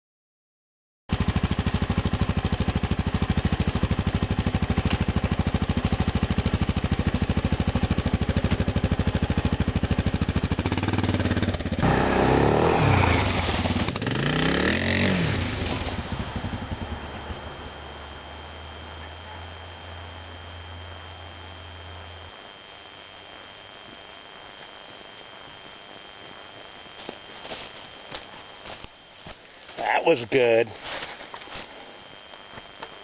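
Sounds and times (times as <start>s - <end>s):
engine running and revving: 1.1s - 22.3s.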